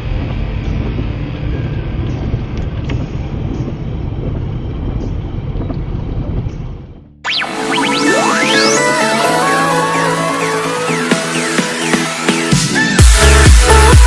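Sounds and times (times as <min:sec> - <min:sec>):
gusting wind: 0:00.0 - 0:07.0
traffic noise: 0:00.0 - 0:07.0
electronic music with rising sweeps: 0:07.2 - 0:14.0.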